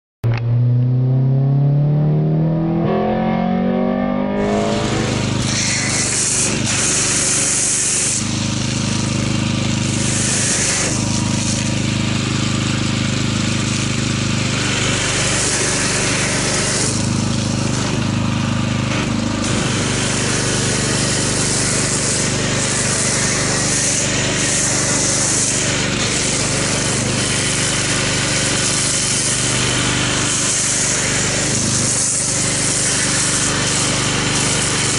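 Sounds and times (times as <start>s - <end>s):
rising hum: 0.2s - 5.9s
pressure washer motor running: 2.6s - 34.9s
foam cannon spraying hiss: 4.5s - 12.0s, 14.5s - 18.0s, 19.4s - 34.9s.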